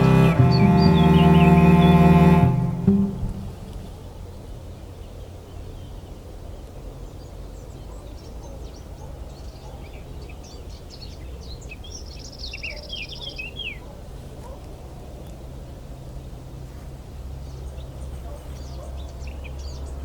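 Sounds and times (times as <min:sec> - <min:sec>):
bird trill: 0:00.0 - 0:03.8
low outdoor rumble: 0:00.0 - 0:04.6.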